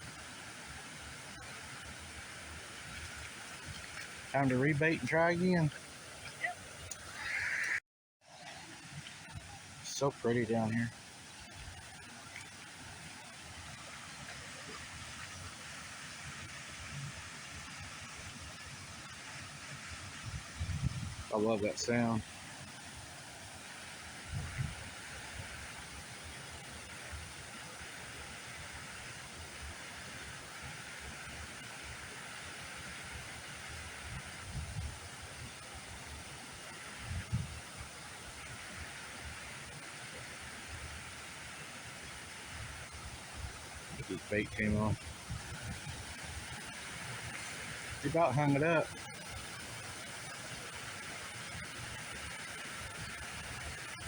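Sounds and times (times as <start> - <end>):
flowing water rushing: 0.0 - 54.0
wind buffeting microphone: 20.0 - 21.3, 24.2 - 24.9, 34.2 - 35.0, 37.0 - 37.6, 42.7 - 46.5.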